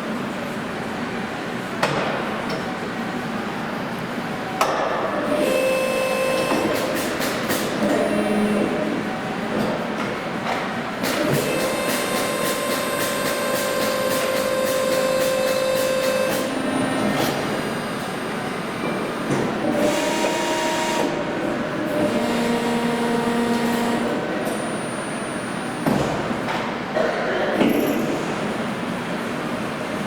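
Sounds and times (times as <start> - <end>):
hydraulic drives whining: 5.2 - 9.1, 11.0 - 26.6.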